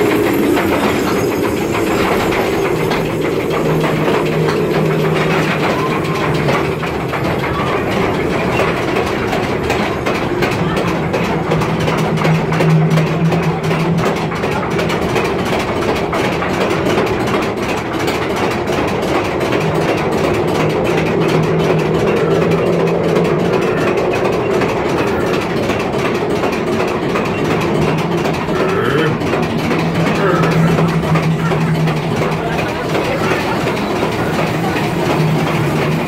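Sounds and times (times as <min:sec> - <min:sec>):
low hum: 0:00.0 - 0:15.2, 0:18.7 - 0:35.9
ride cars rumbling on track: 0:00.0 - 0:36.0.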